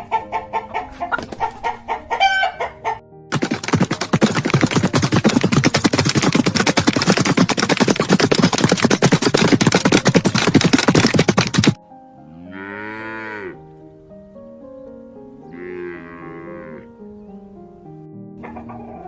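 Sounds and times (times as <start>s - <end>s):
soft background music: 0.0s - 5.0s, 11.7s - 19.0s
loud rapid clatter: 3.3s - 11.8s
cow mooing: 12.2s - 13.7s, 15.5s - 17.0s.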